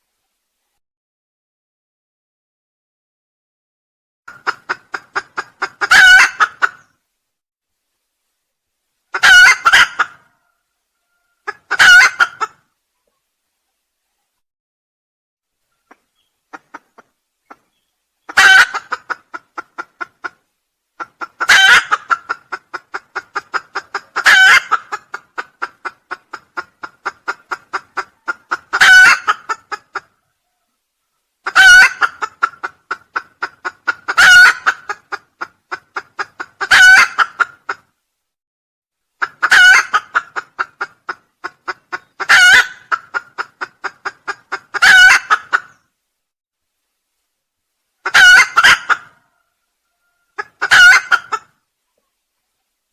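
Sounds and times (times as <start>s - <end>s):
junglefowl crowing: 4.4s - 6.9s, 9.1s - 12.6s, 18.3s - 20.0s, 21.0s - 37.8s, 39.2s - 41.2s, 41.9s - 45.8s, 48.0s - 51.6s.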